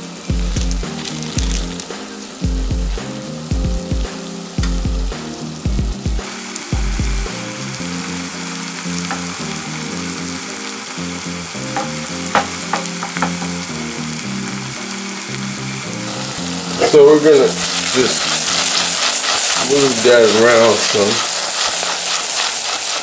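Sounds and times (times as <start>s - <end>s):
vegetables sizzling in oil: 0.0s - 23.0s.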